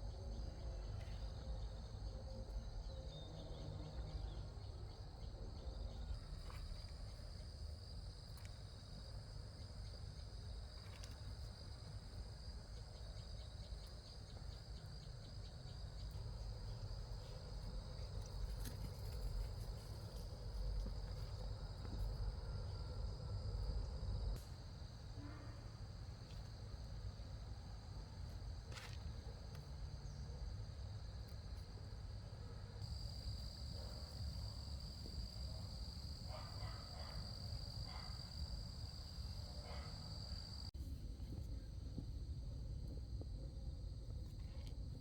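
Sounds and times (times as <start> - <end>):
insects chirring: 32.8 - 40.7.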